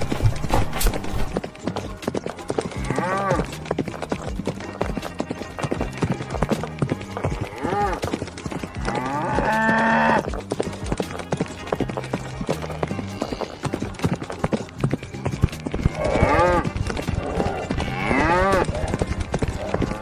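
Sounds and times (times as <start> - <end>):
cattle hoofbeats: 0.0 - 20.0
cows mooing: 2.7 - 3.6, 7.2 - 10.3, 12.8 - 14.0, 15.7 - 20.0.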